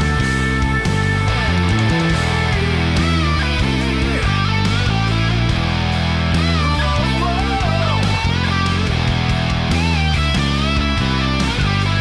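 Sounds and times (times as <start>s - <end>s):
driving electric bass line: 0.0s - 12.0s
progressive metal song: 0.0s - 12.0s
sustained high guitar notes: 0.0s - 12.0s.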